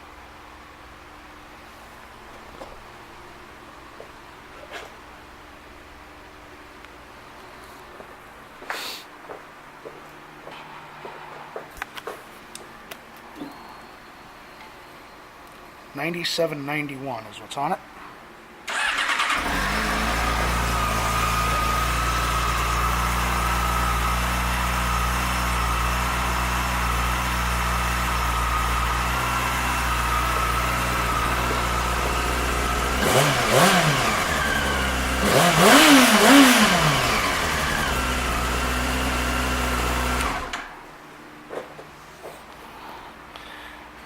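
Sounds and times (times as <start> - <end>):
motorcycle engine idling: 18.7 - 40.5
engine revving blips: 18.7 - 40.7.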